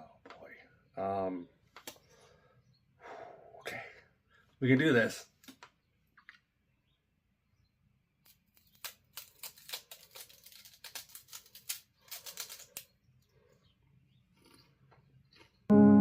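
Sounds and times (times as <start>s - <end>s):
crispy seaweed roll crunching: 8.3s - 12.9s.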